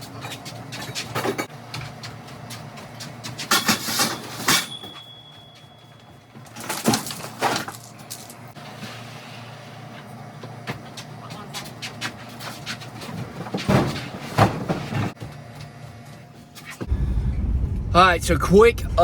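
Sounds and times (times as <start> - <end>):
thin high ringing tone: 4.5 - 6.4.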